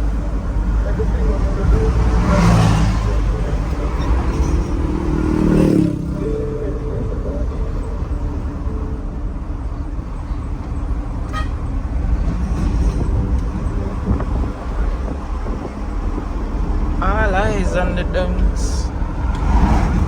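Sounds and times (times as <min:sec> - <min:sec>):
road noise: 0:00.0 - 0:20.0
truck engine rumble: 0:00.0 - 0:20.0
horn toot: 0:11.3 - 0:11.7.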